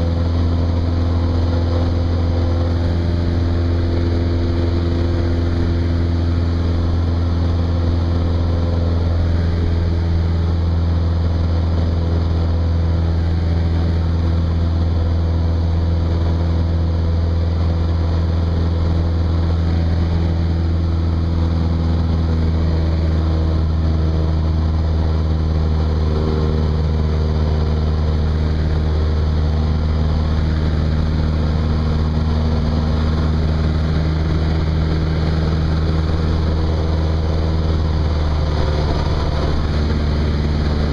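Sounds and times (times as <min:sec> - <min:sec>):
propeller plane engine drone: 0:00.0 - 0:40.9.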